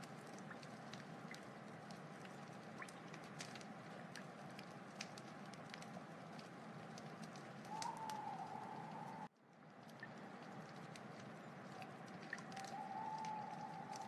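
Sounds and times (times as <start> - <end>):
wood fire crackling: 0.0 - 14.0
wavering whistling tone: 7.7 - 9.3, 12.6 - 14.0.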